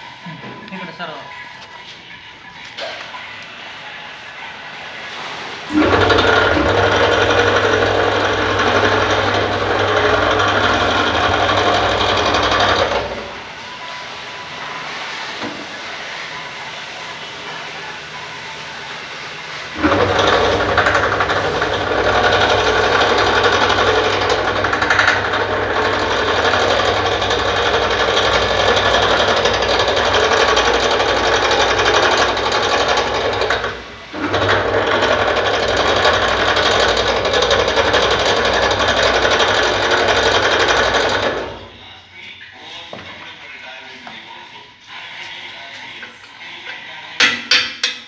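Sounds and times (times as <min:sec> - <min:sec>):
machine clattering over hum: 0:05.6 - 0:13.6, 0:14.2 - 0:41.8.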